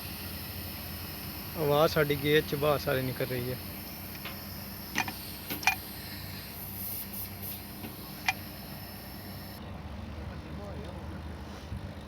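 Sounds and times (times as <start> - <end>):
air conditioner humming: 0.0 - 9.6.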